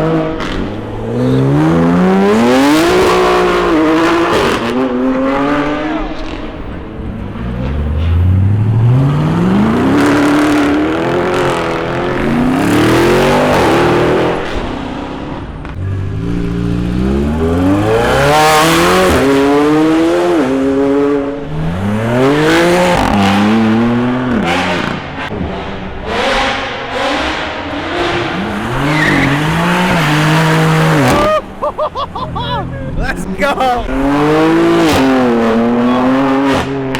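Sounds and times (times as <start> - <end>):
car engine revving: 0.0 - 36.9
tyre squeal: 28.4 - 31.6.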